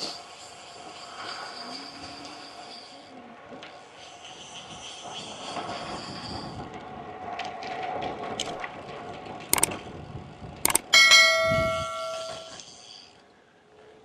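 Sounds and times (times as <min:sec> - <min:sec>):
sharp clicks: 0:09.6 - 0:09.8, 0:10.7 - 0:11.1
bell-like metallic ring: 0:10.8 - 0:12.6.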